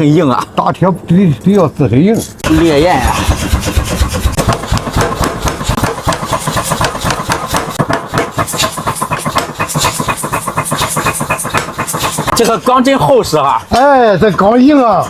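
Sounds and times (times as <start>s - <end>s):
power hammer striking steel: 2.4s - 13.0s.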